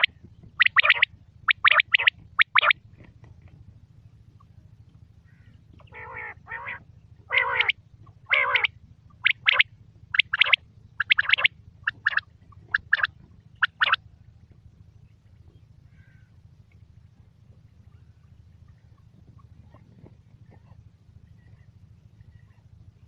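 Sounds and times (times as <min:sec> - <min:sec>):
quail calling: 0:00.0 - 0:02.8, 0:05.2 - 0:14.0.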